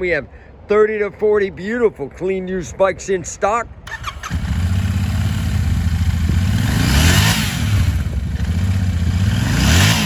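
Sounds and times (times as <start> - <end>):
motorcycle engine idling and revving: 3.9 - 10.0.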